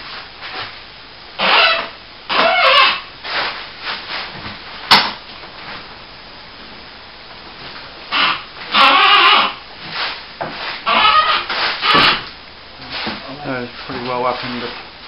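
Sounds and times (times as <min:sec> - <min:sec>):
sheet lifter squeaking: 0:01.4 - 0:03.1, 0:08.1 - 0:09.6, 0:10.6 - 0:12.3.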